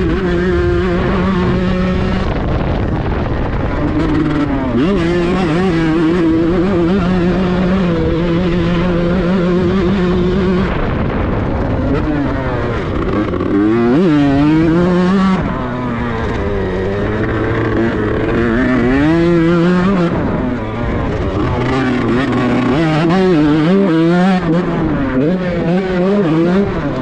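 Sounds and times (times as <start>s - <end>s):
two-stroke motorcycle engine revving: 0.0s - 27.0s.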